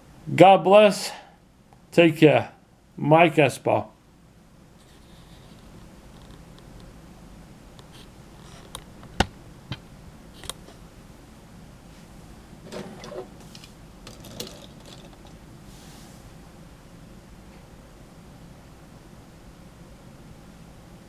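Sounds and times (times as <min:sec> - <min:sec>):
handling and rustling noise: 0:11.8 - 0:16.3.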